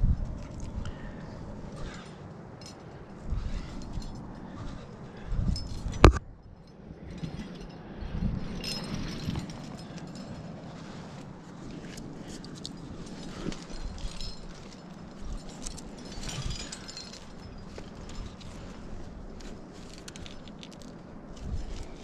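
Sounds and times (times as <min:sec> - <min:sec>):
wind rumble on microphone: 0:00.0 - 0:22.0
metal hardware clinking: 0:12.3 - 0:18.6.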